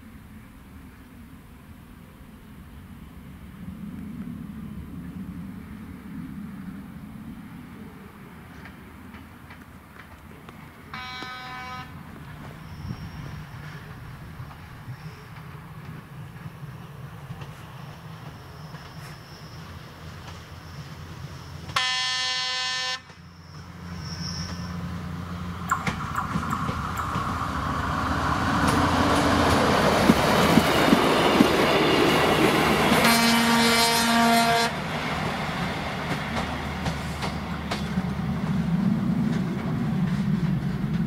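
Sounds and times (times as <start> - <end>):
approaching train rumble: 0.0 - 41.0
train horn blasts: 10.9 - 12.0, 21.7 - 23.2, 32.9 - 34.8
wheels clicking over rails: 25.7 - 32.3.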